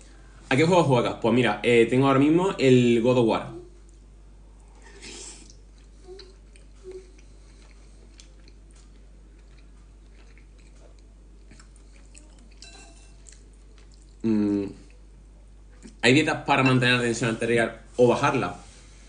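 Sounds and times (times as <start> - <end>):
chewing soup: 3.8 - 16.0.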